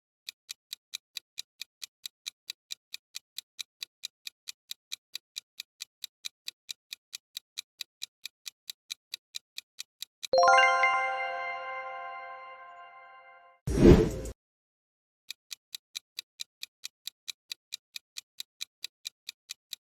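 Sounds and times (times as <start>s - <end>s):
countdown timer ticking: 10.4s - 13.4s.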